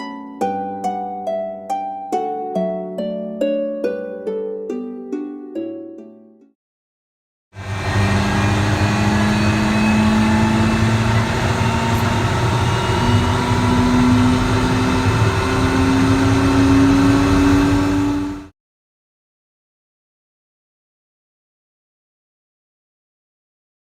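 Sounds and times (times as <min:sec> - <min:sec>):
aircraft propeller engine humming: 0:07.6 - 0:18.5.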